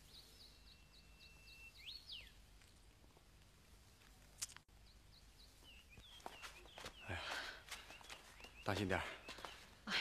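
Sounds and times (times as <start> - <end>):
faint high bird chirps: 0.0 - 2.4.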